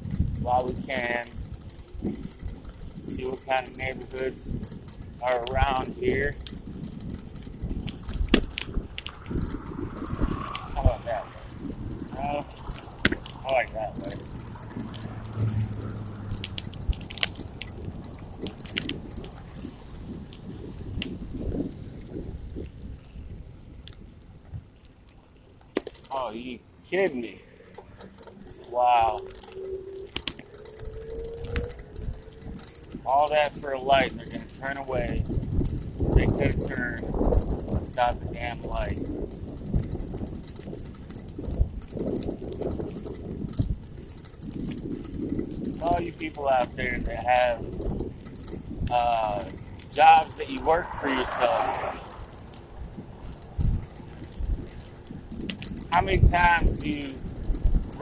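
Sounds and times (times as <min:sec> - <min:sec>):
low hum: 0:00.0 - 0:33.1, 0:46.7 - 0:56.1
bicycle clicking and rattling: 0:00.0 - 0:58.0
low rumble of riding: 0:00.0 - 0:58.0
wind buffeting microphone: 0:00.0 - 0:58.0.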